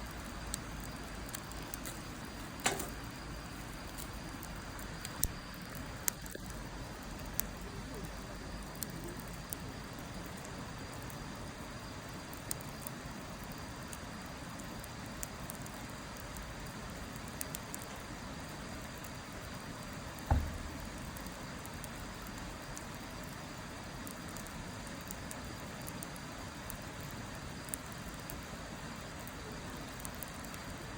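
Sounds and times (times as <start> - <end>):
wood fire crackling and popping: 0.0 - 30.9
dull thump: 2.6 - 3.0, 20.3 - 21.0.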